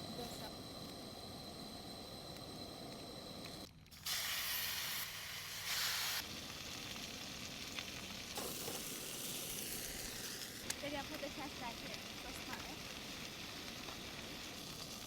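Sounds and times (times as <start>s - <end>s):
potatoes sizzling in a pan: 3.9s - 15.0s.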